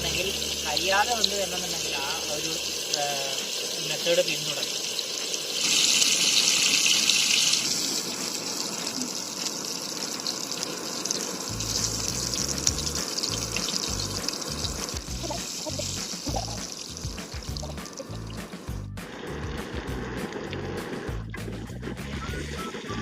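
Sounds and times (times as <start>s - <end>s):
chicken sizzling in a pan: 0.0s - 21.1s
background music with low beat: 11.5s - 23.0s.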